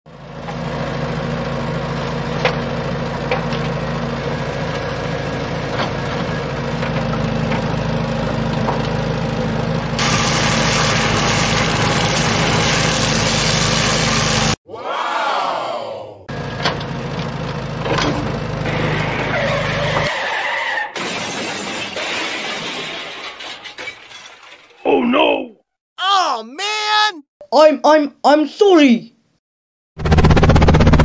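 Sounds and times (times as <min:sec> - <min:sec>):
diesel engine running: 0:00.1 - 0:14.6, 0:16.3 - 0:20.1.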